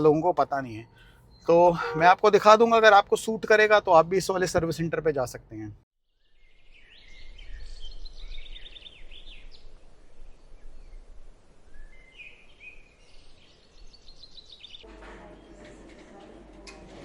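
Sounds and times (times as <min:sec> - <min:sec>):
birds chirping: 0:00.0 - 0:05.7.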